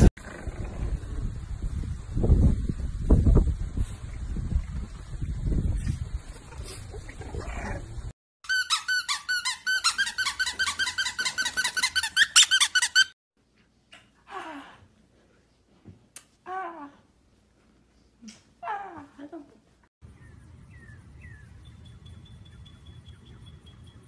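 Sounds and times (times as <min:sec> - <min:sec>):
wind rumbling on microphone: 0:00.0 - 0:08.1
rapid high-pitched squeaks: 0:08.4 - 0:13.2.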